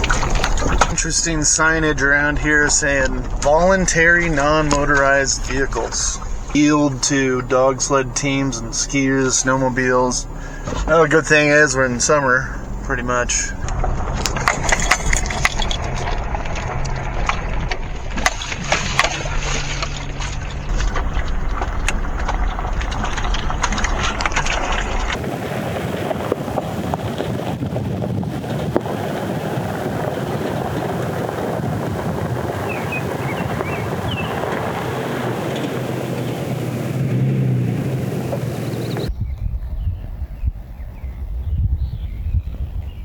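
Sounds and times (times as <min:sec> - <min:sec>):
clicks and rattles: 0:00.0 - 0:25.2
vehicle rumbling on rough road: 0:00.0 - 0:43.0
faint bird chirps: 0:38.6 - 0:43.0.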